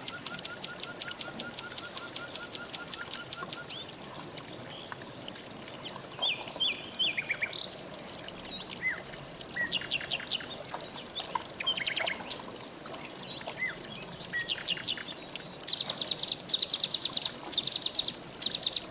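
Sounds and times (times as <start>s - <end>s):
river water flowing: 0.0s - 18.9s.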